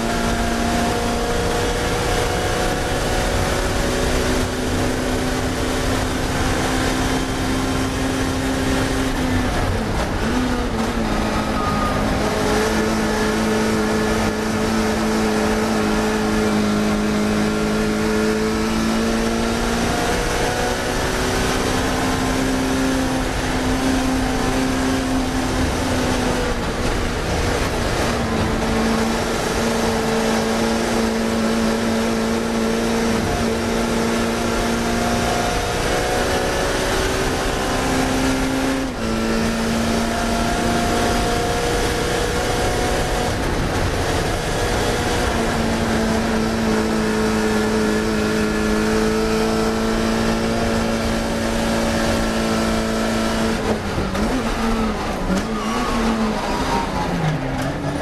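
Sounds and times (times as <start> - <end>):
racing car engine at high revs: 0.0 - 58.0.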